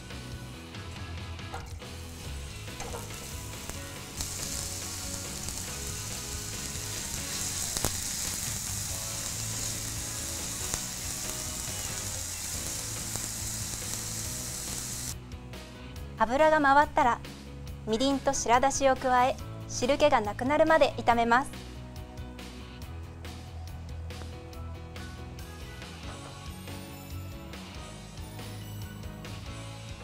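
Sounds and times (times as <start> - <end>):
vegetables sizzling in frying pan: 1.6 - 15.2.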